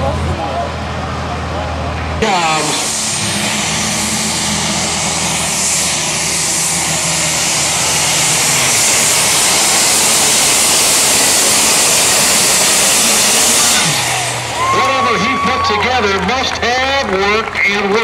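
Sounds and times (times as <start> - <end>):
tractor engine at full power: 0.0 - 18.0
strong hiss: 2.2 - 16.0.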